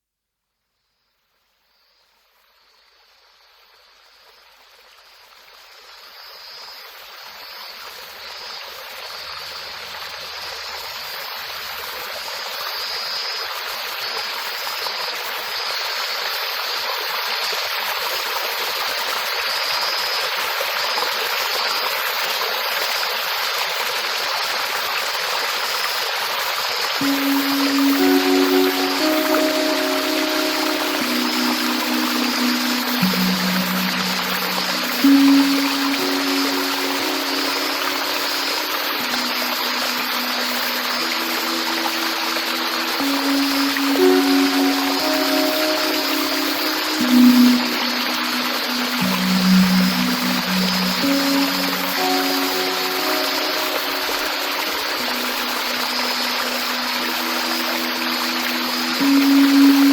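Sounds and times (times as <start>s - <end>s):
stream water rushing: 7.1s - 59.9s
pitched music notes: 27.0s - 59.9s.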